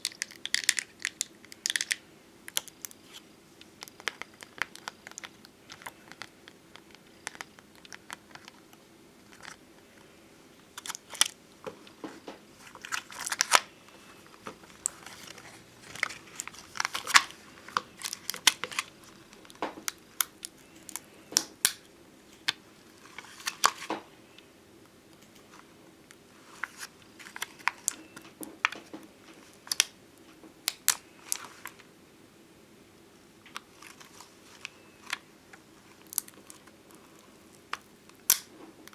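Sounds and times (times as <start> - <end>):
stickers peeling and crinkling: 0.0 - 9.6, 10.8 - 11.4, 12.6 - 21.9, 26.4 - 29.9, 33.4 - 38.9.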